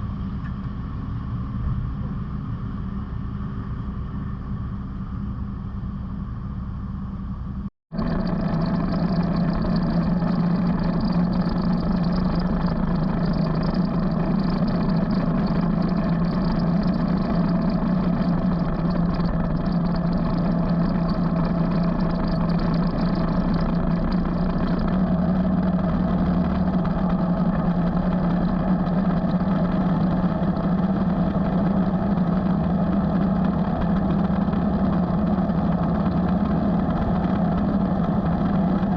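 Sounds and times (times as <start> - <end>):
motorcycle engine running: 7.9 - 38.9.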